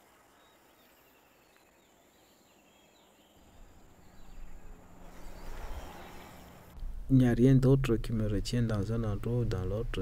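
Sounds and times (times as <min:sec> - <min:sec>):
low rumble: 0:03.4 - 0:10.0.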